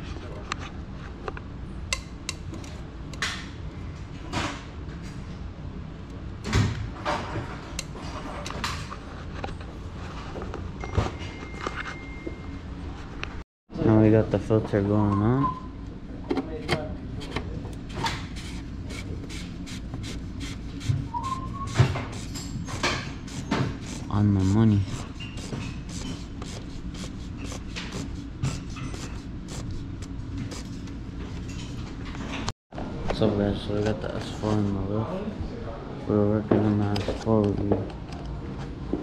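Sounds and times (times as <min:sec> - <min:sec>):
low shop rumble: 0:12.5 - 0:39.0
tools knocking and scraping: 0:16.2 - 0:24.1, 0:24.8 - 0:32.5.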